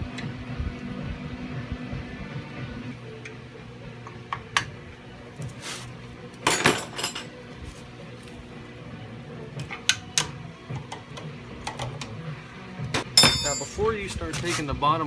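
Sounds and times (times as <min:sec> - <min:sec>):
metal tools clinking: 0:05.5 - 0:08.4, 0:13.0 - 0:14.7.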